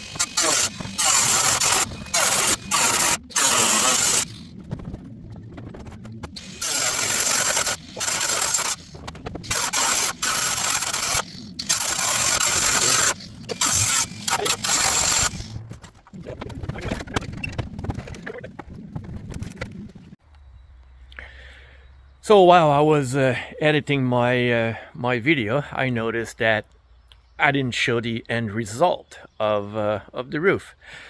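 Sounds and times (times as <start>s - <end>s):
cordless drill whining: 0.0s - 4.4s, 6.4s - 8.9s, 9.5s - 15.5s.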